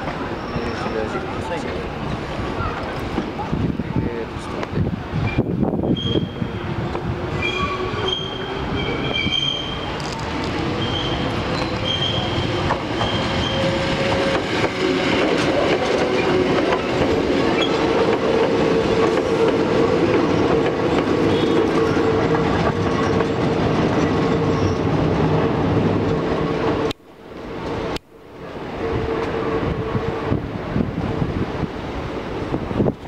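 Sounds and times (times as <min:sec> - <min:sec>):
high wheel squeal: 0:00.3 - 0:01.3, 0:05.3 - 0:06.7, 0:07.3 - 0:15.2, 0:24.0 - 0:25.0
electric train running: 0:08.0 - 0:24.7.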